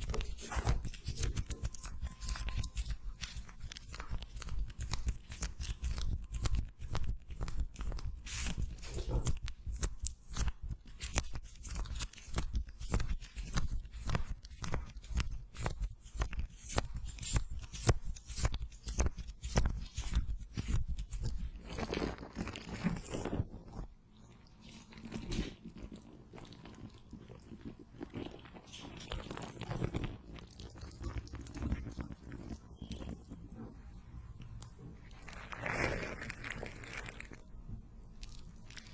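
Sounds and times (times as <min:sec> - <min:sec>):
sticky crackling on microphone: 0:00.0 - 0:23.9, 0:25.0 - 0:37.5
soft rubbing sweeps: 0:32.0 - 0:37.5.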